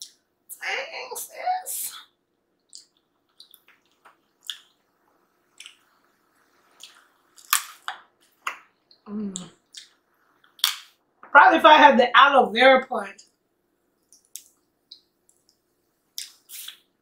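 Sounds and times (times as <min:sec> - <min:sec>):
wet mouth smacks and clicks: 0:02.7 - 0:04.8, 0:05.6 - 0:05.8, 0:06.8 - 0:10.0, 0:10.6 - 0:10.9, 0:14.1 - 0:15.6, 0:16.2 - 0:16.9
person gnawing and sucking bone: 0:02.7 - 0:04.9, 0:05.5 - 0:10.9, 0:14.0 - 0:15.6, 0:16.2 - 0:16.9.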